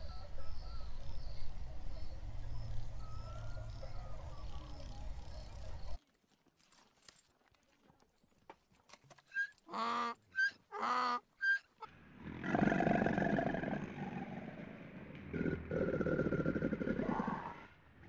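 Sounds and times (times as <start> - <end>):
donkey braying: 9.3 - 11.9.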